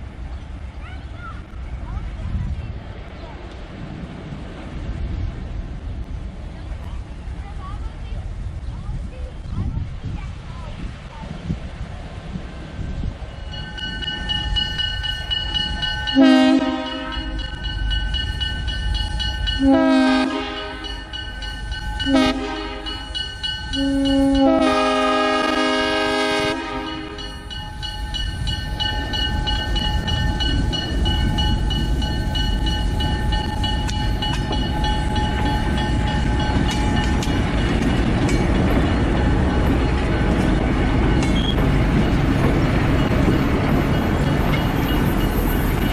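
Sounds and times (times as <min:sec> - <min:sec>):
train rumbling past: 0:00.0 - 0:45.9
locomotive air horn blasts: 0:16.1 - 0:17.5, 0:19.6 - 0:21.1, 0:22.0 - 0:27.6.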